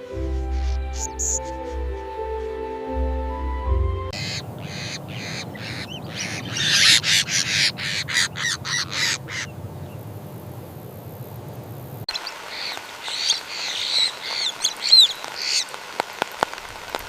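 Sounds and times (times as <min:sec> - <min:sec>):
bird harsh calls: 0:00.0 - 0:02.5, 0:04.1 - 0:10.1, 0:12.1 - 0:15.8
low outdoor background: 0:00.0 - 0:17.0.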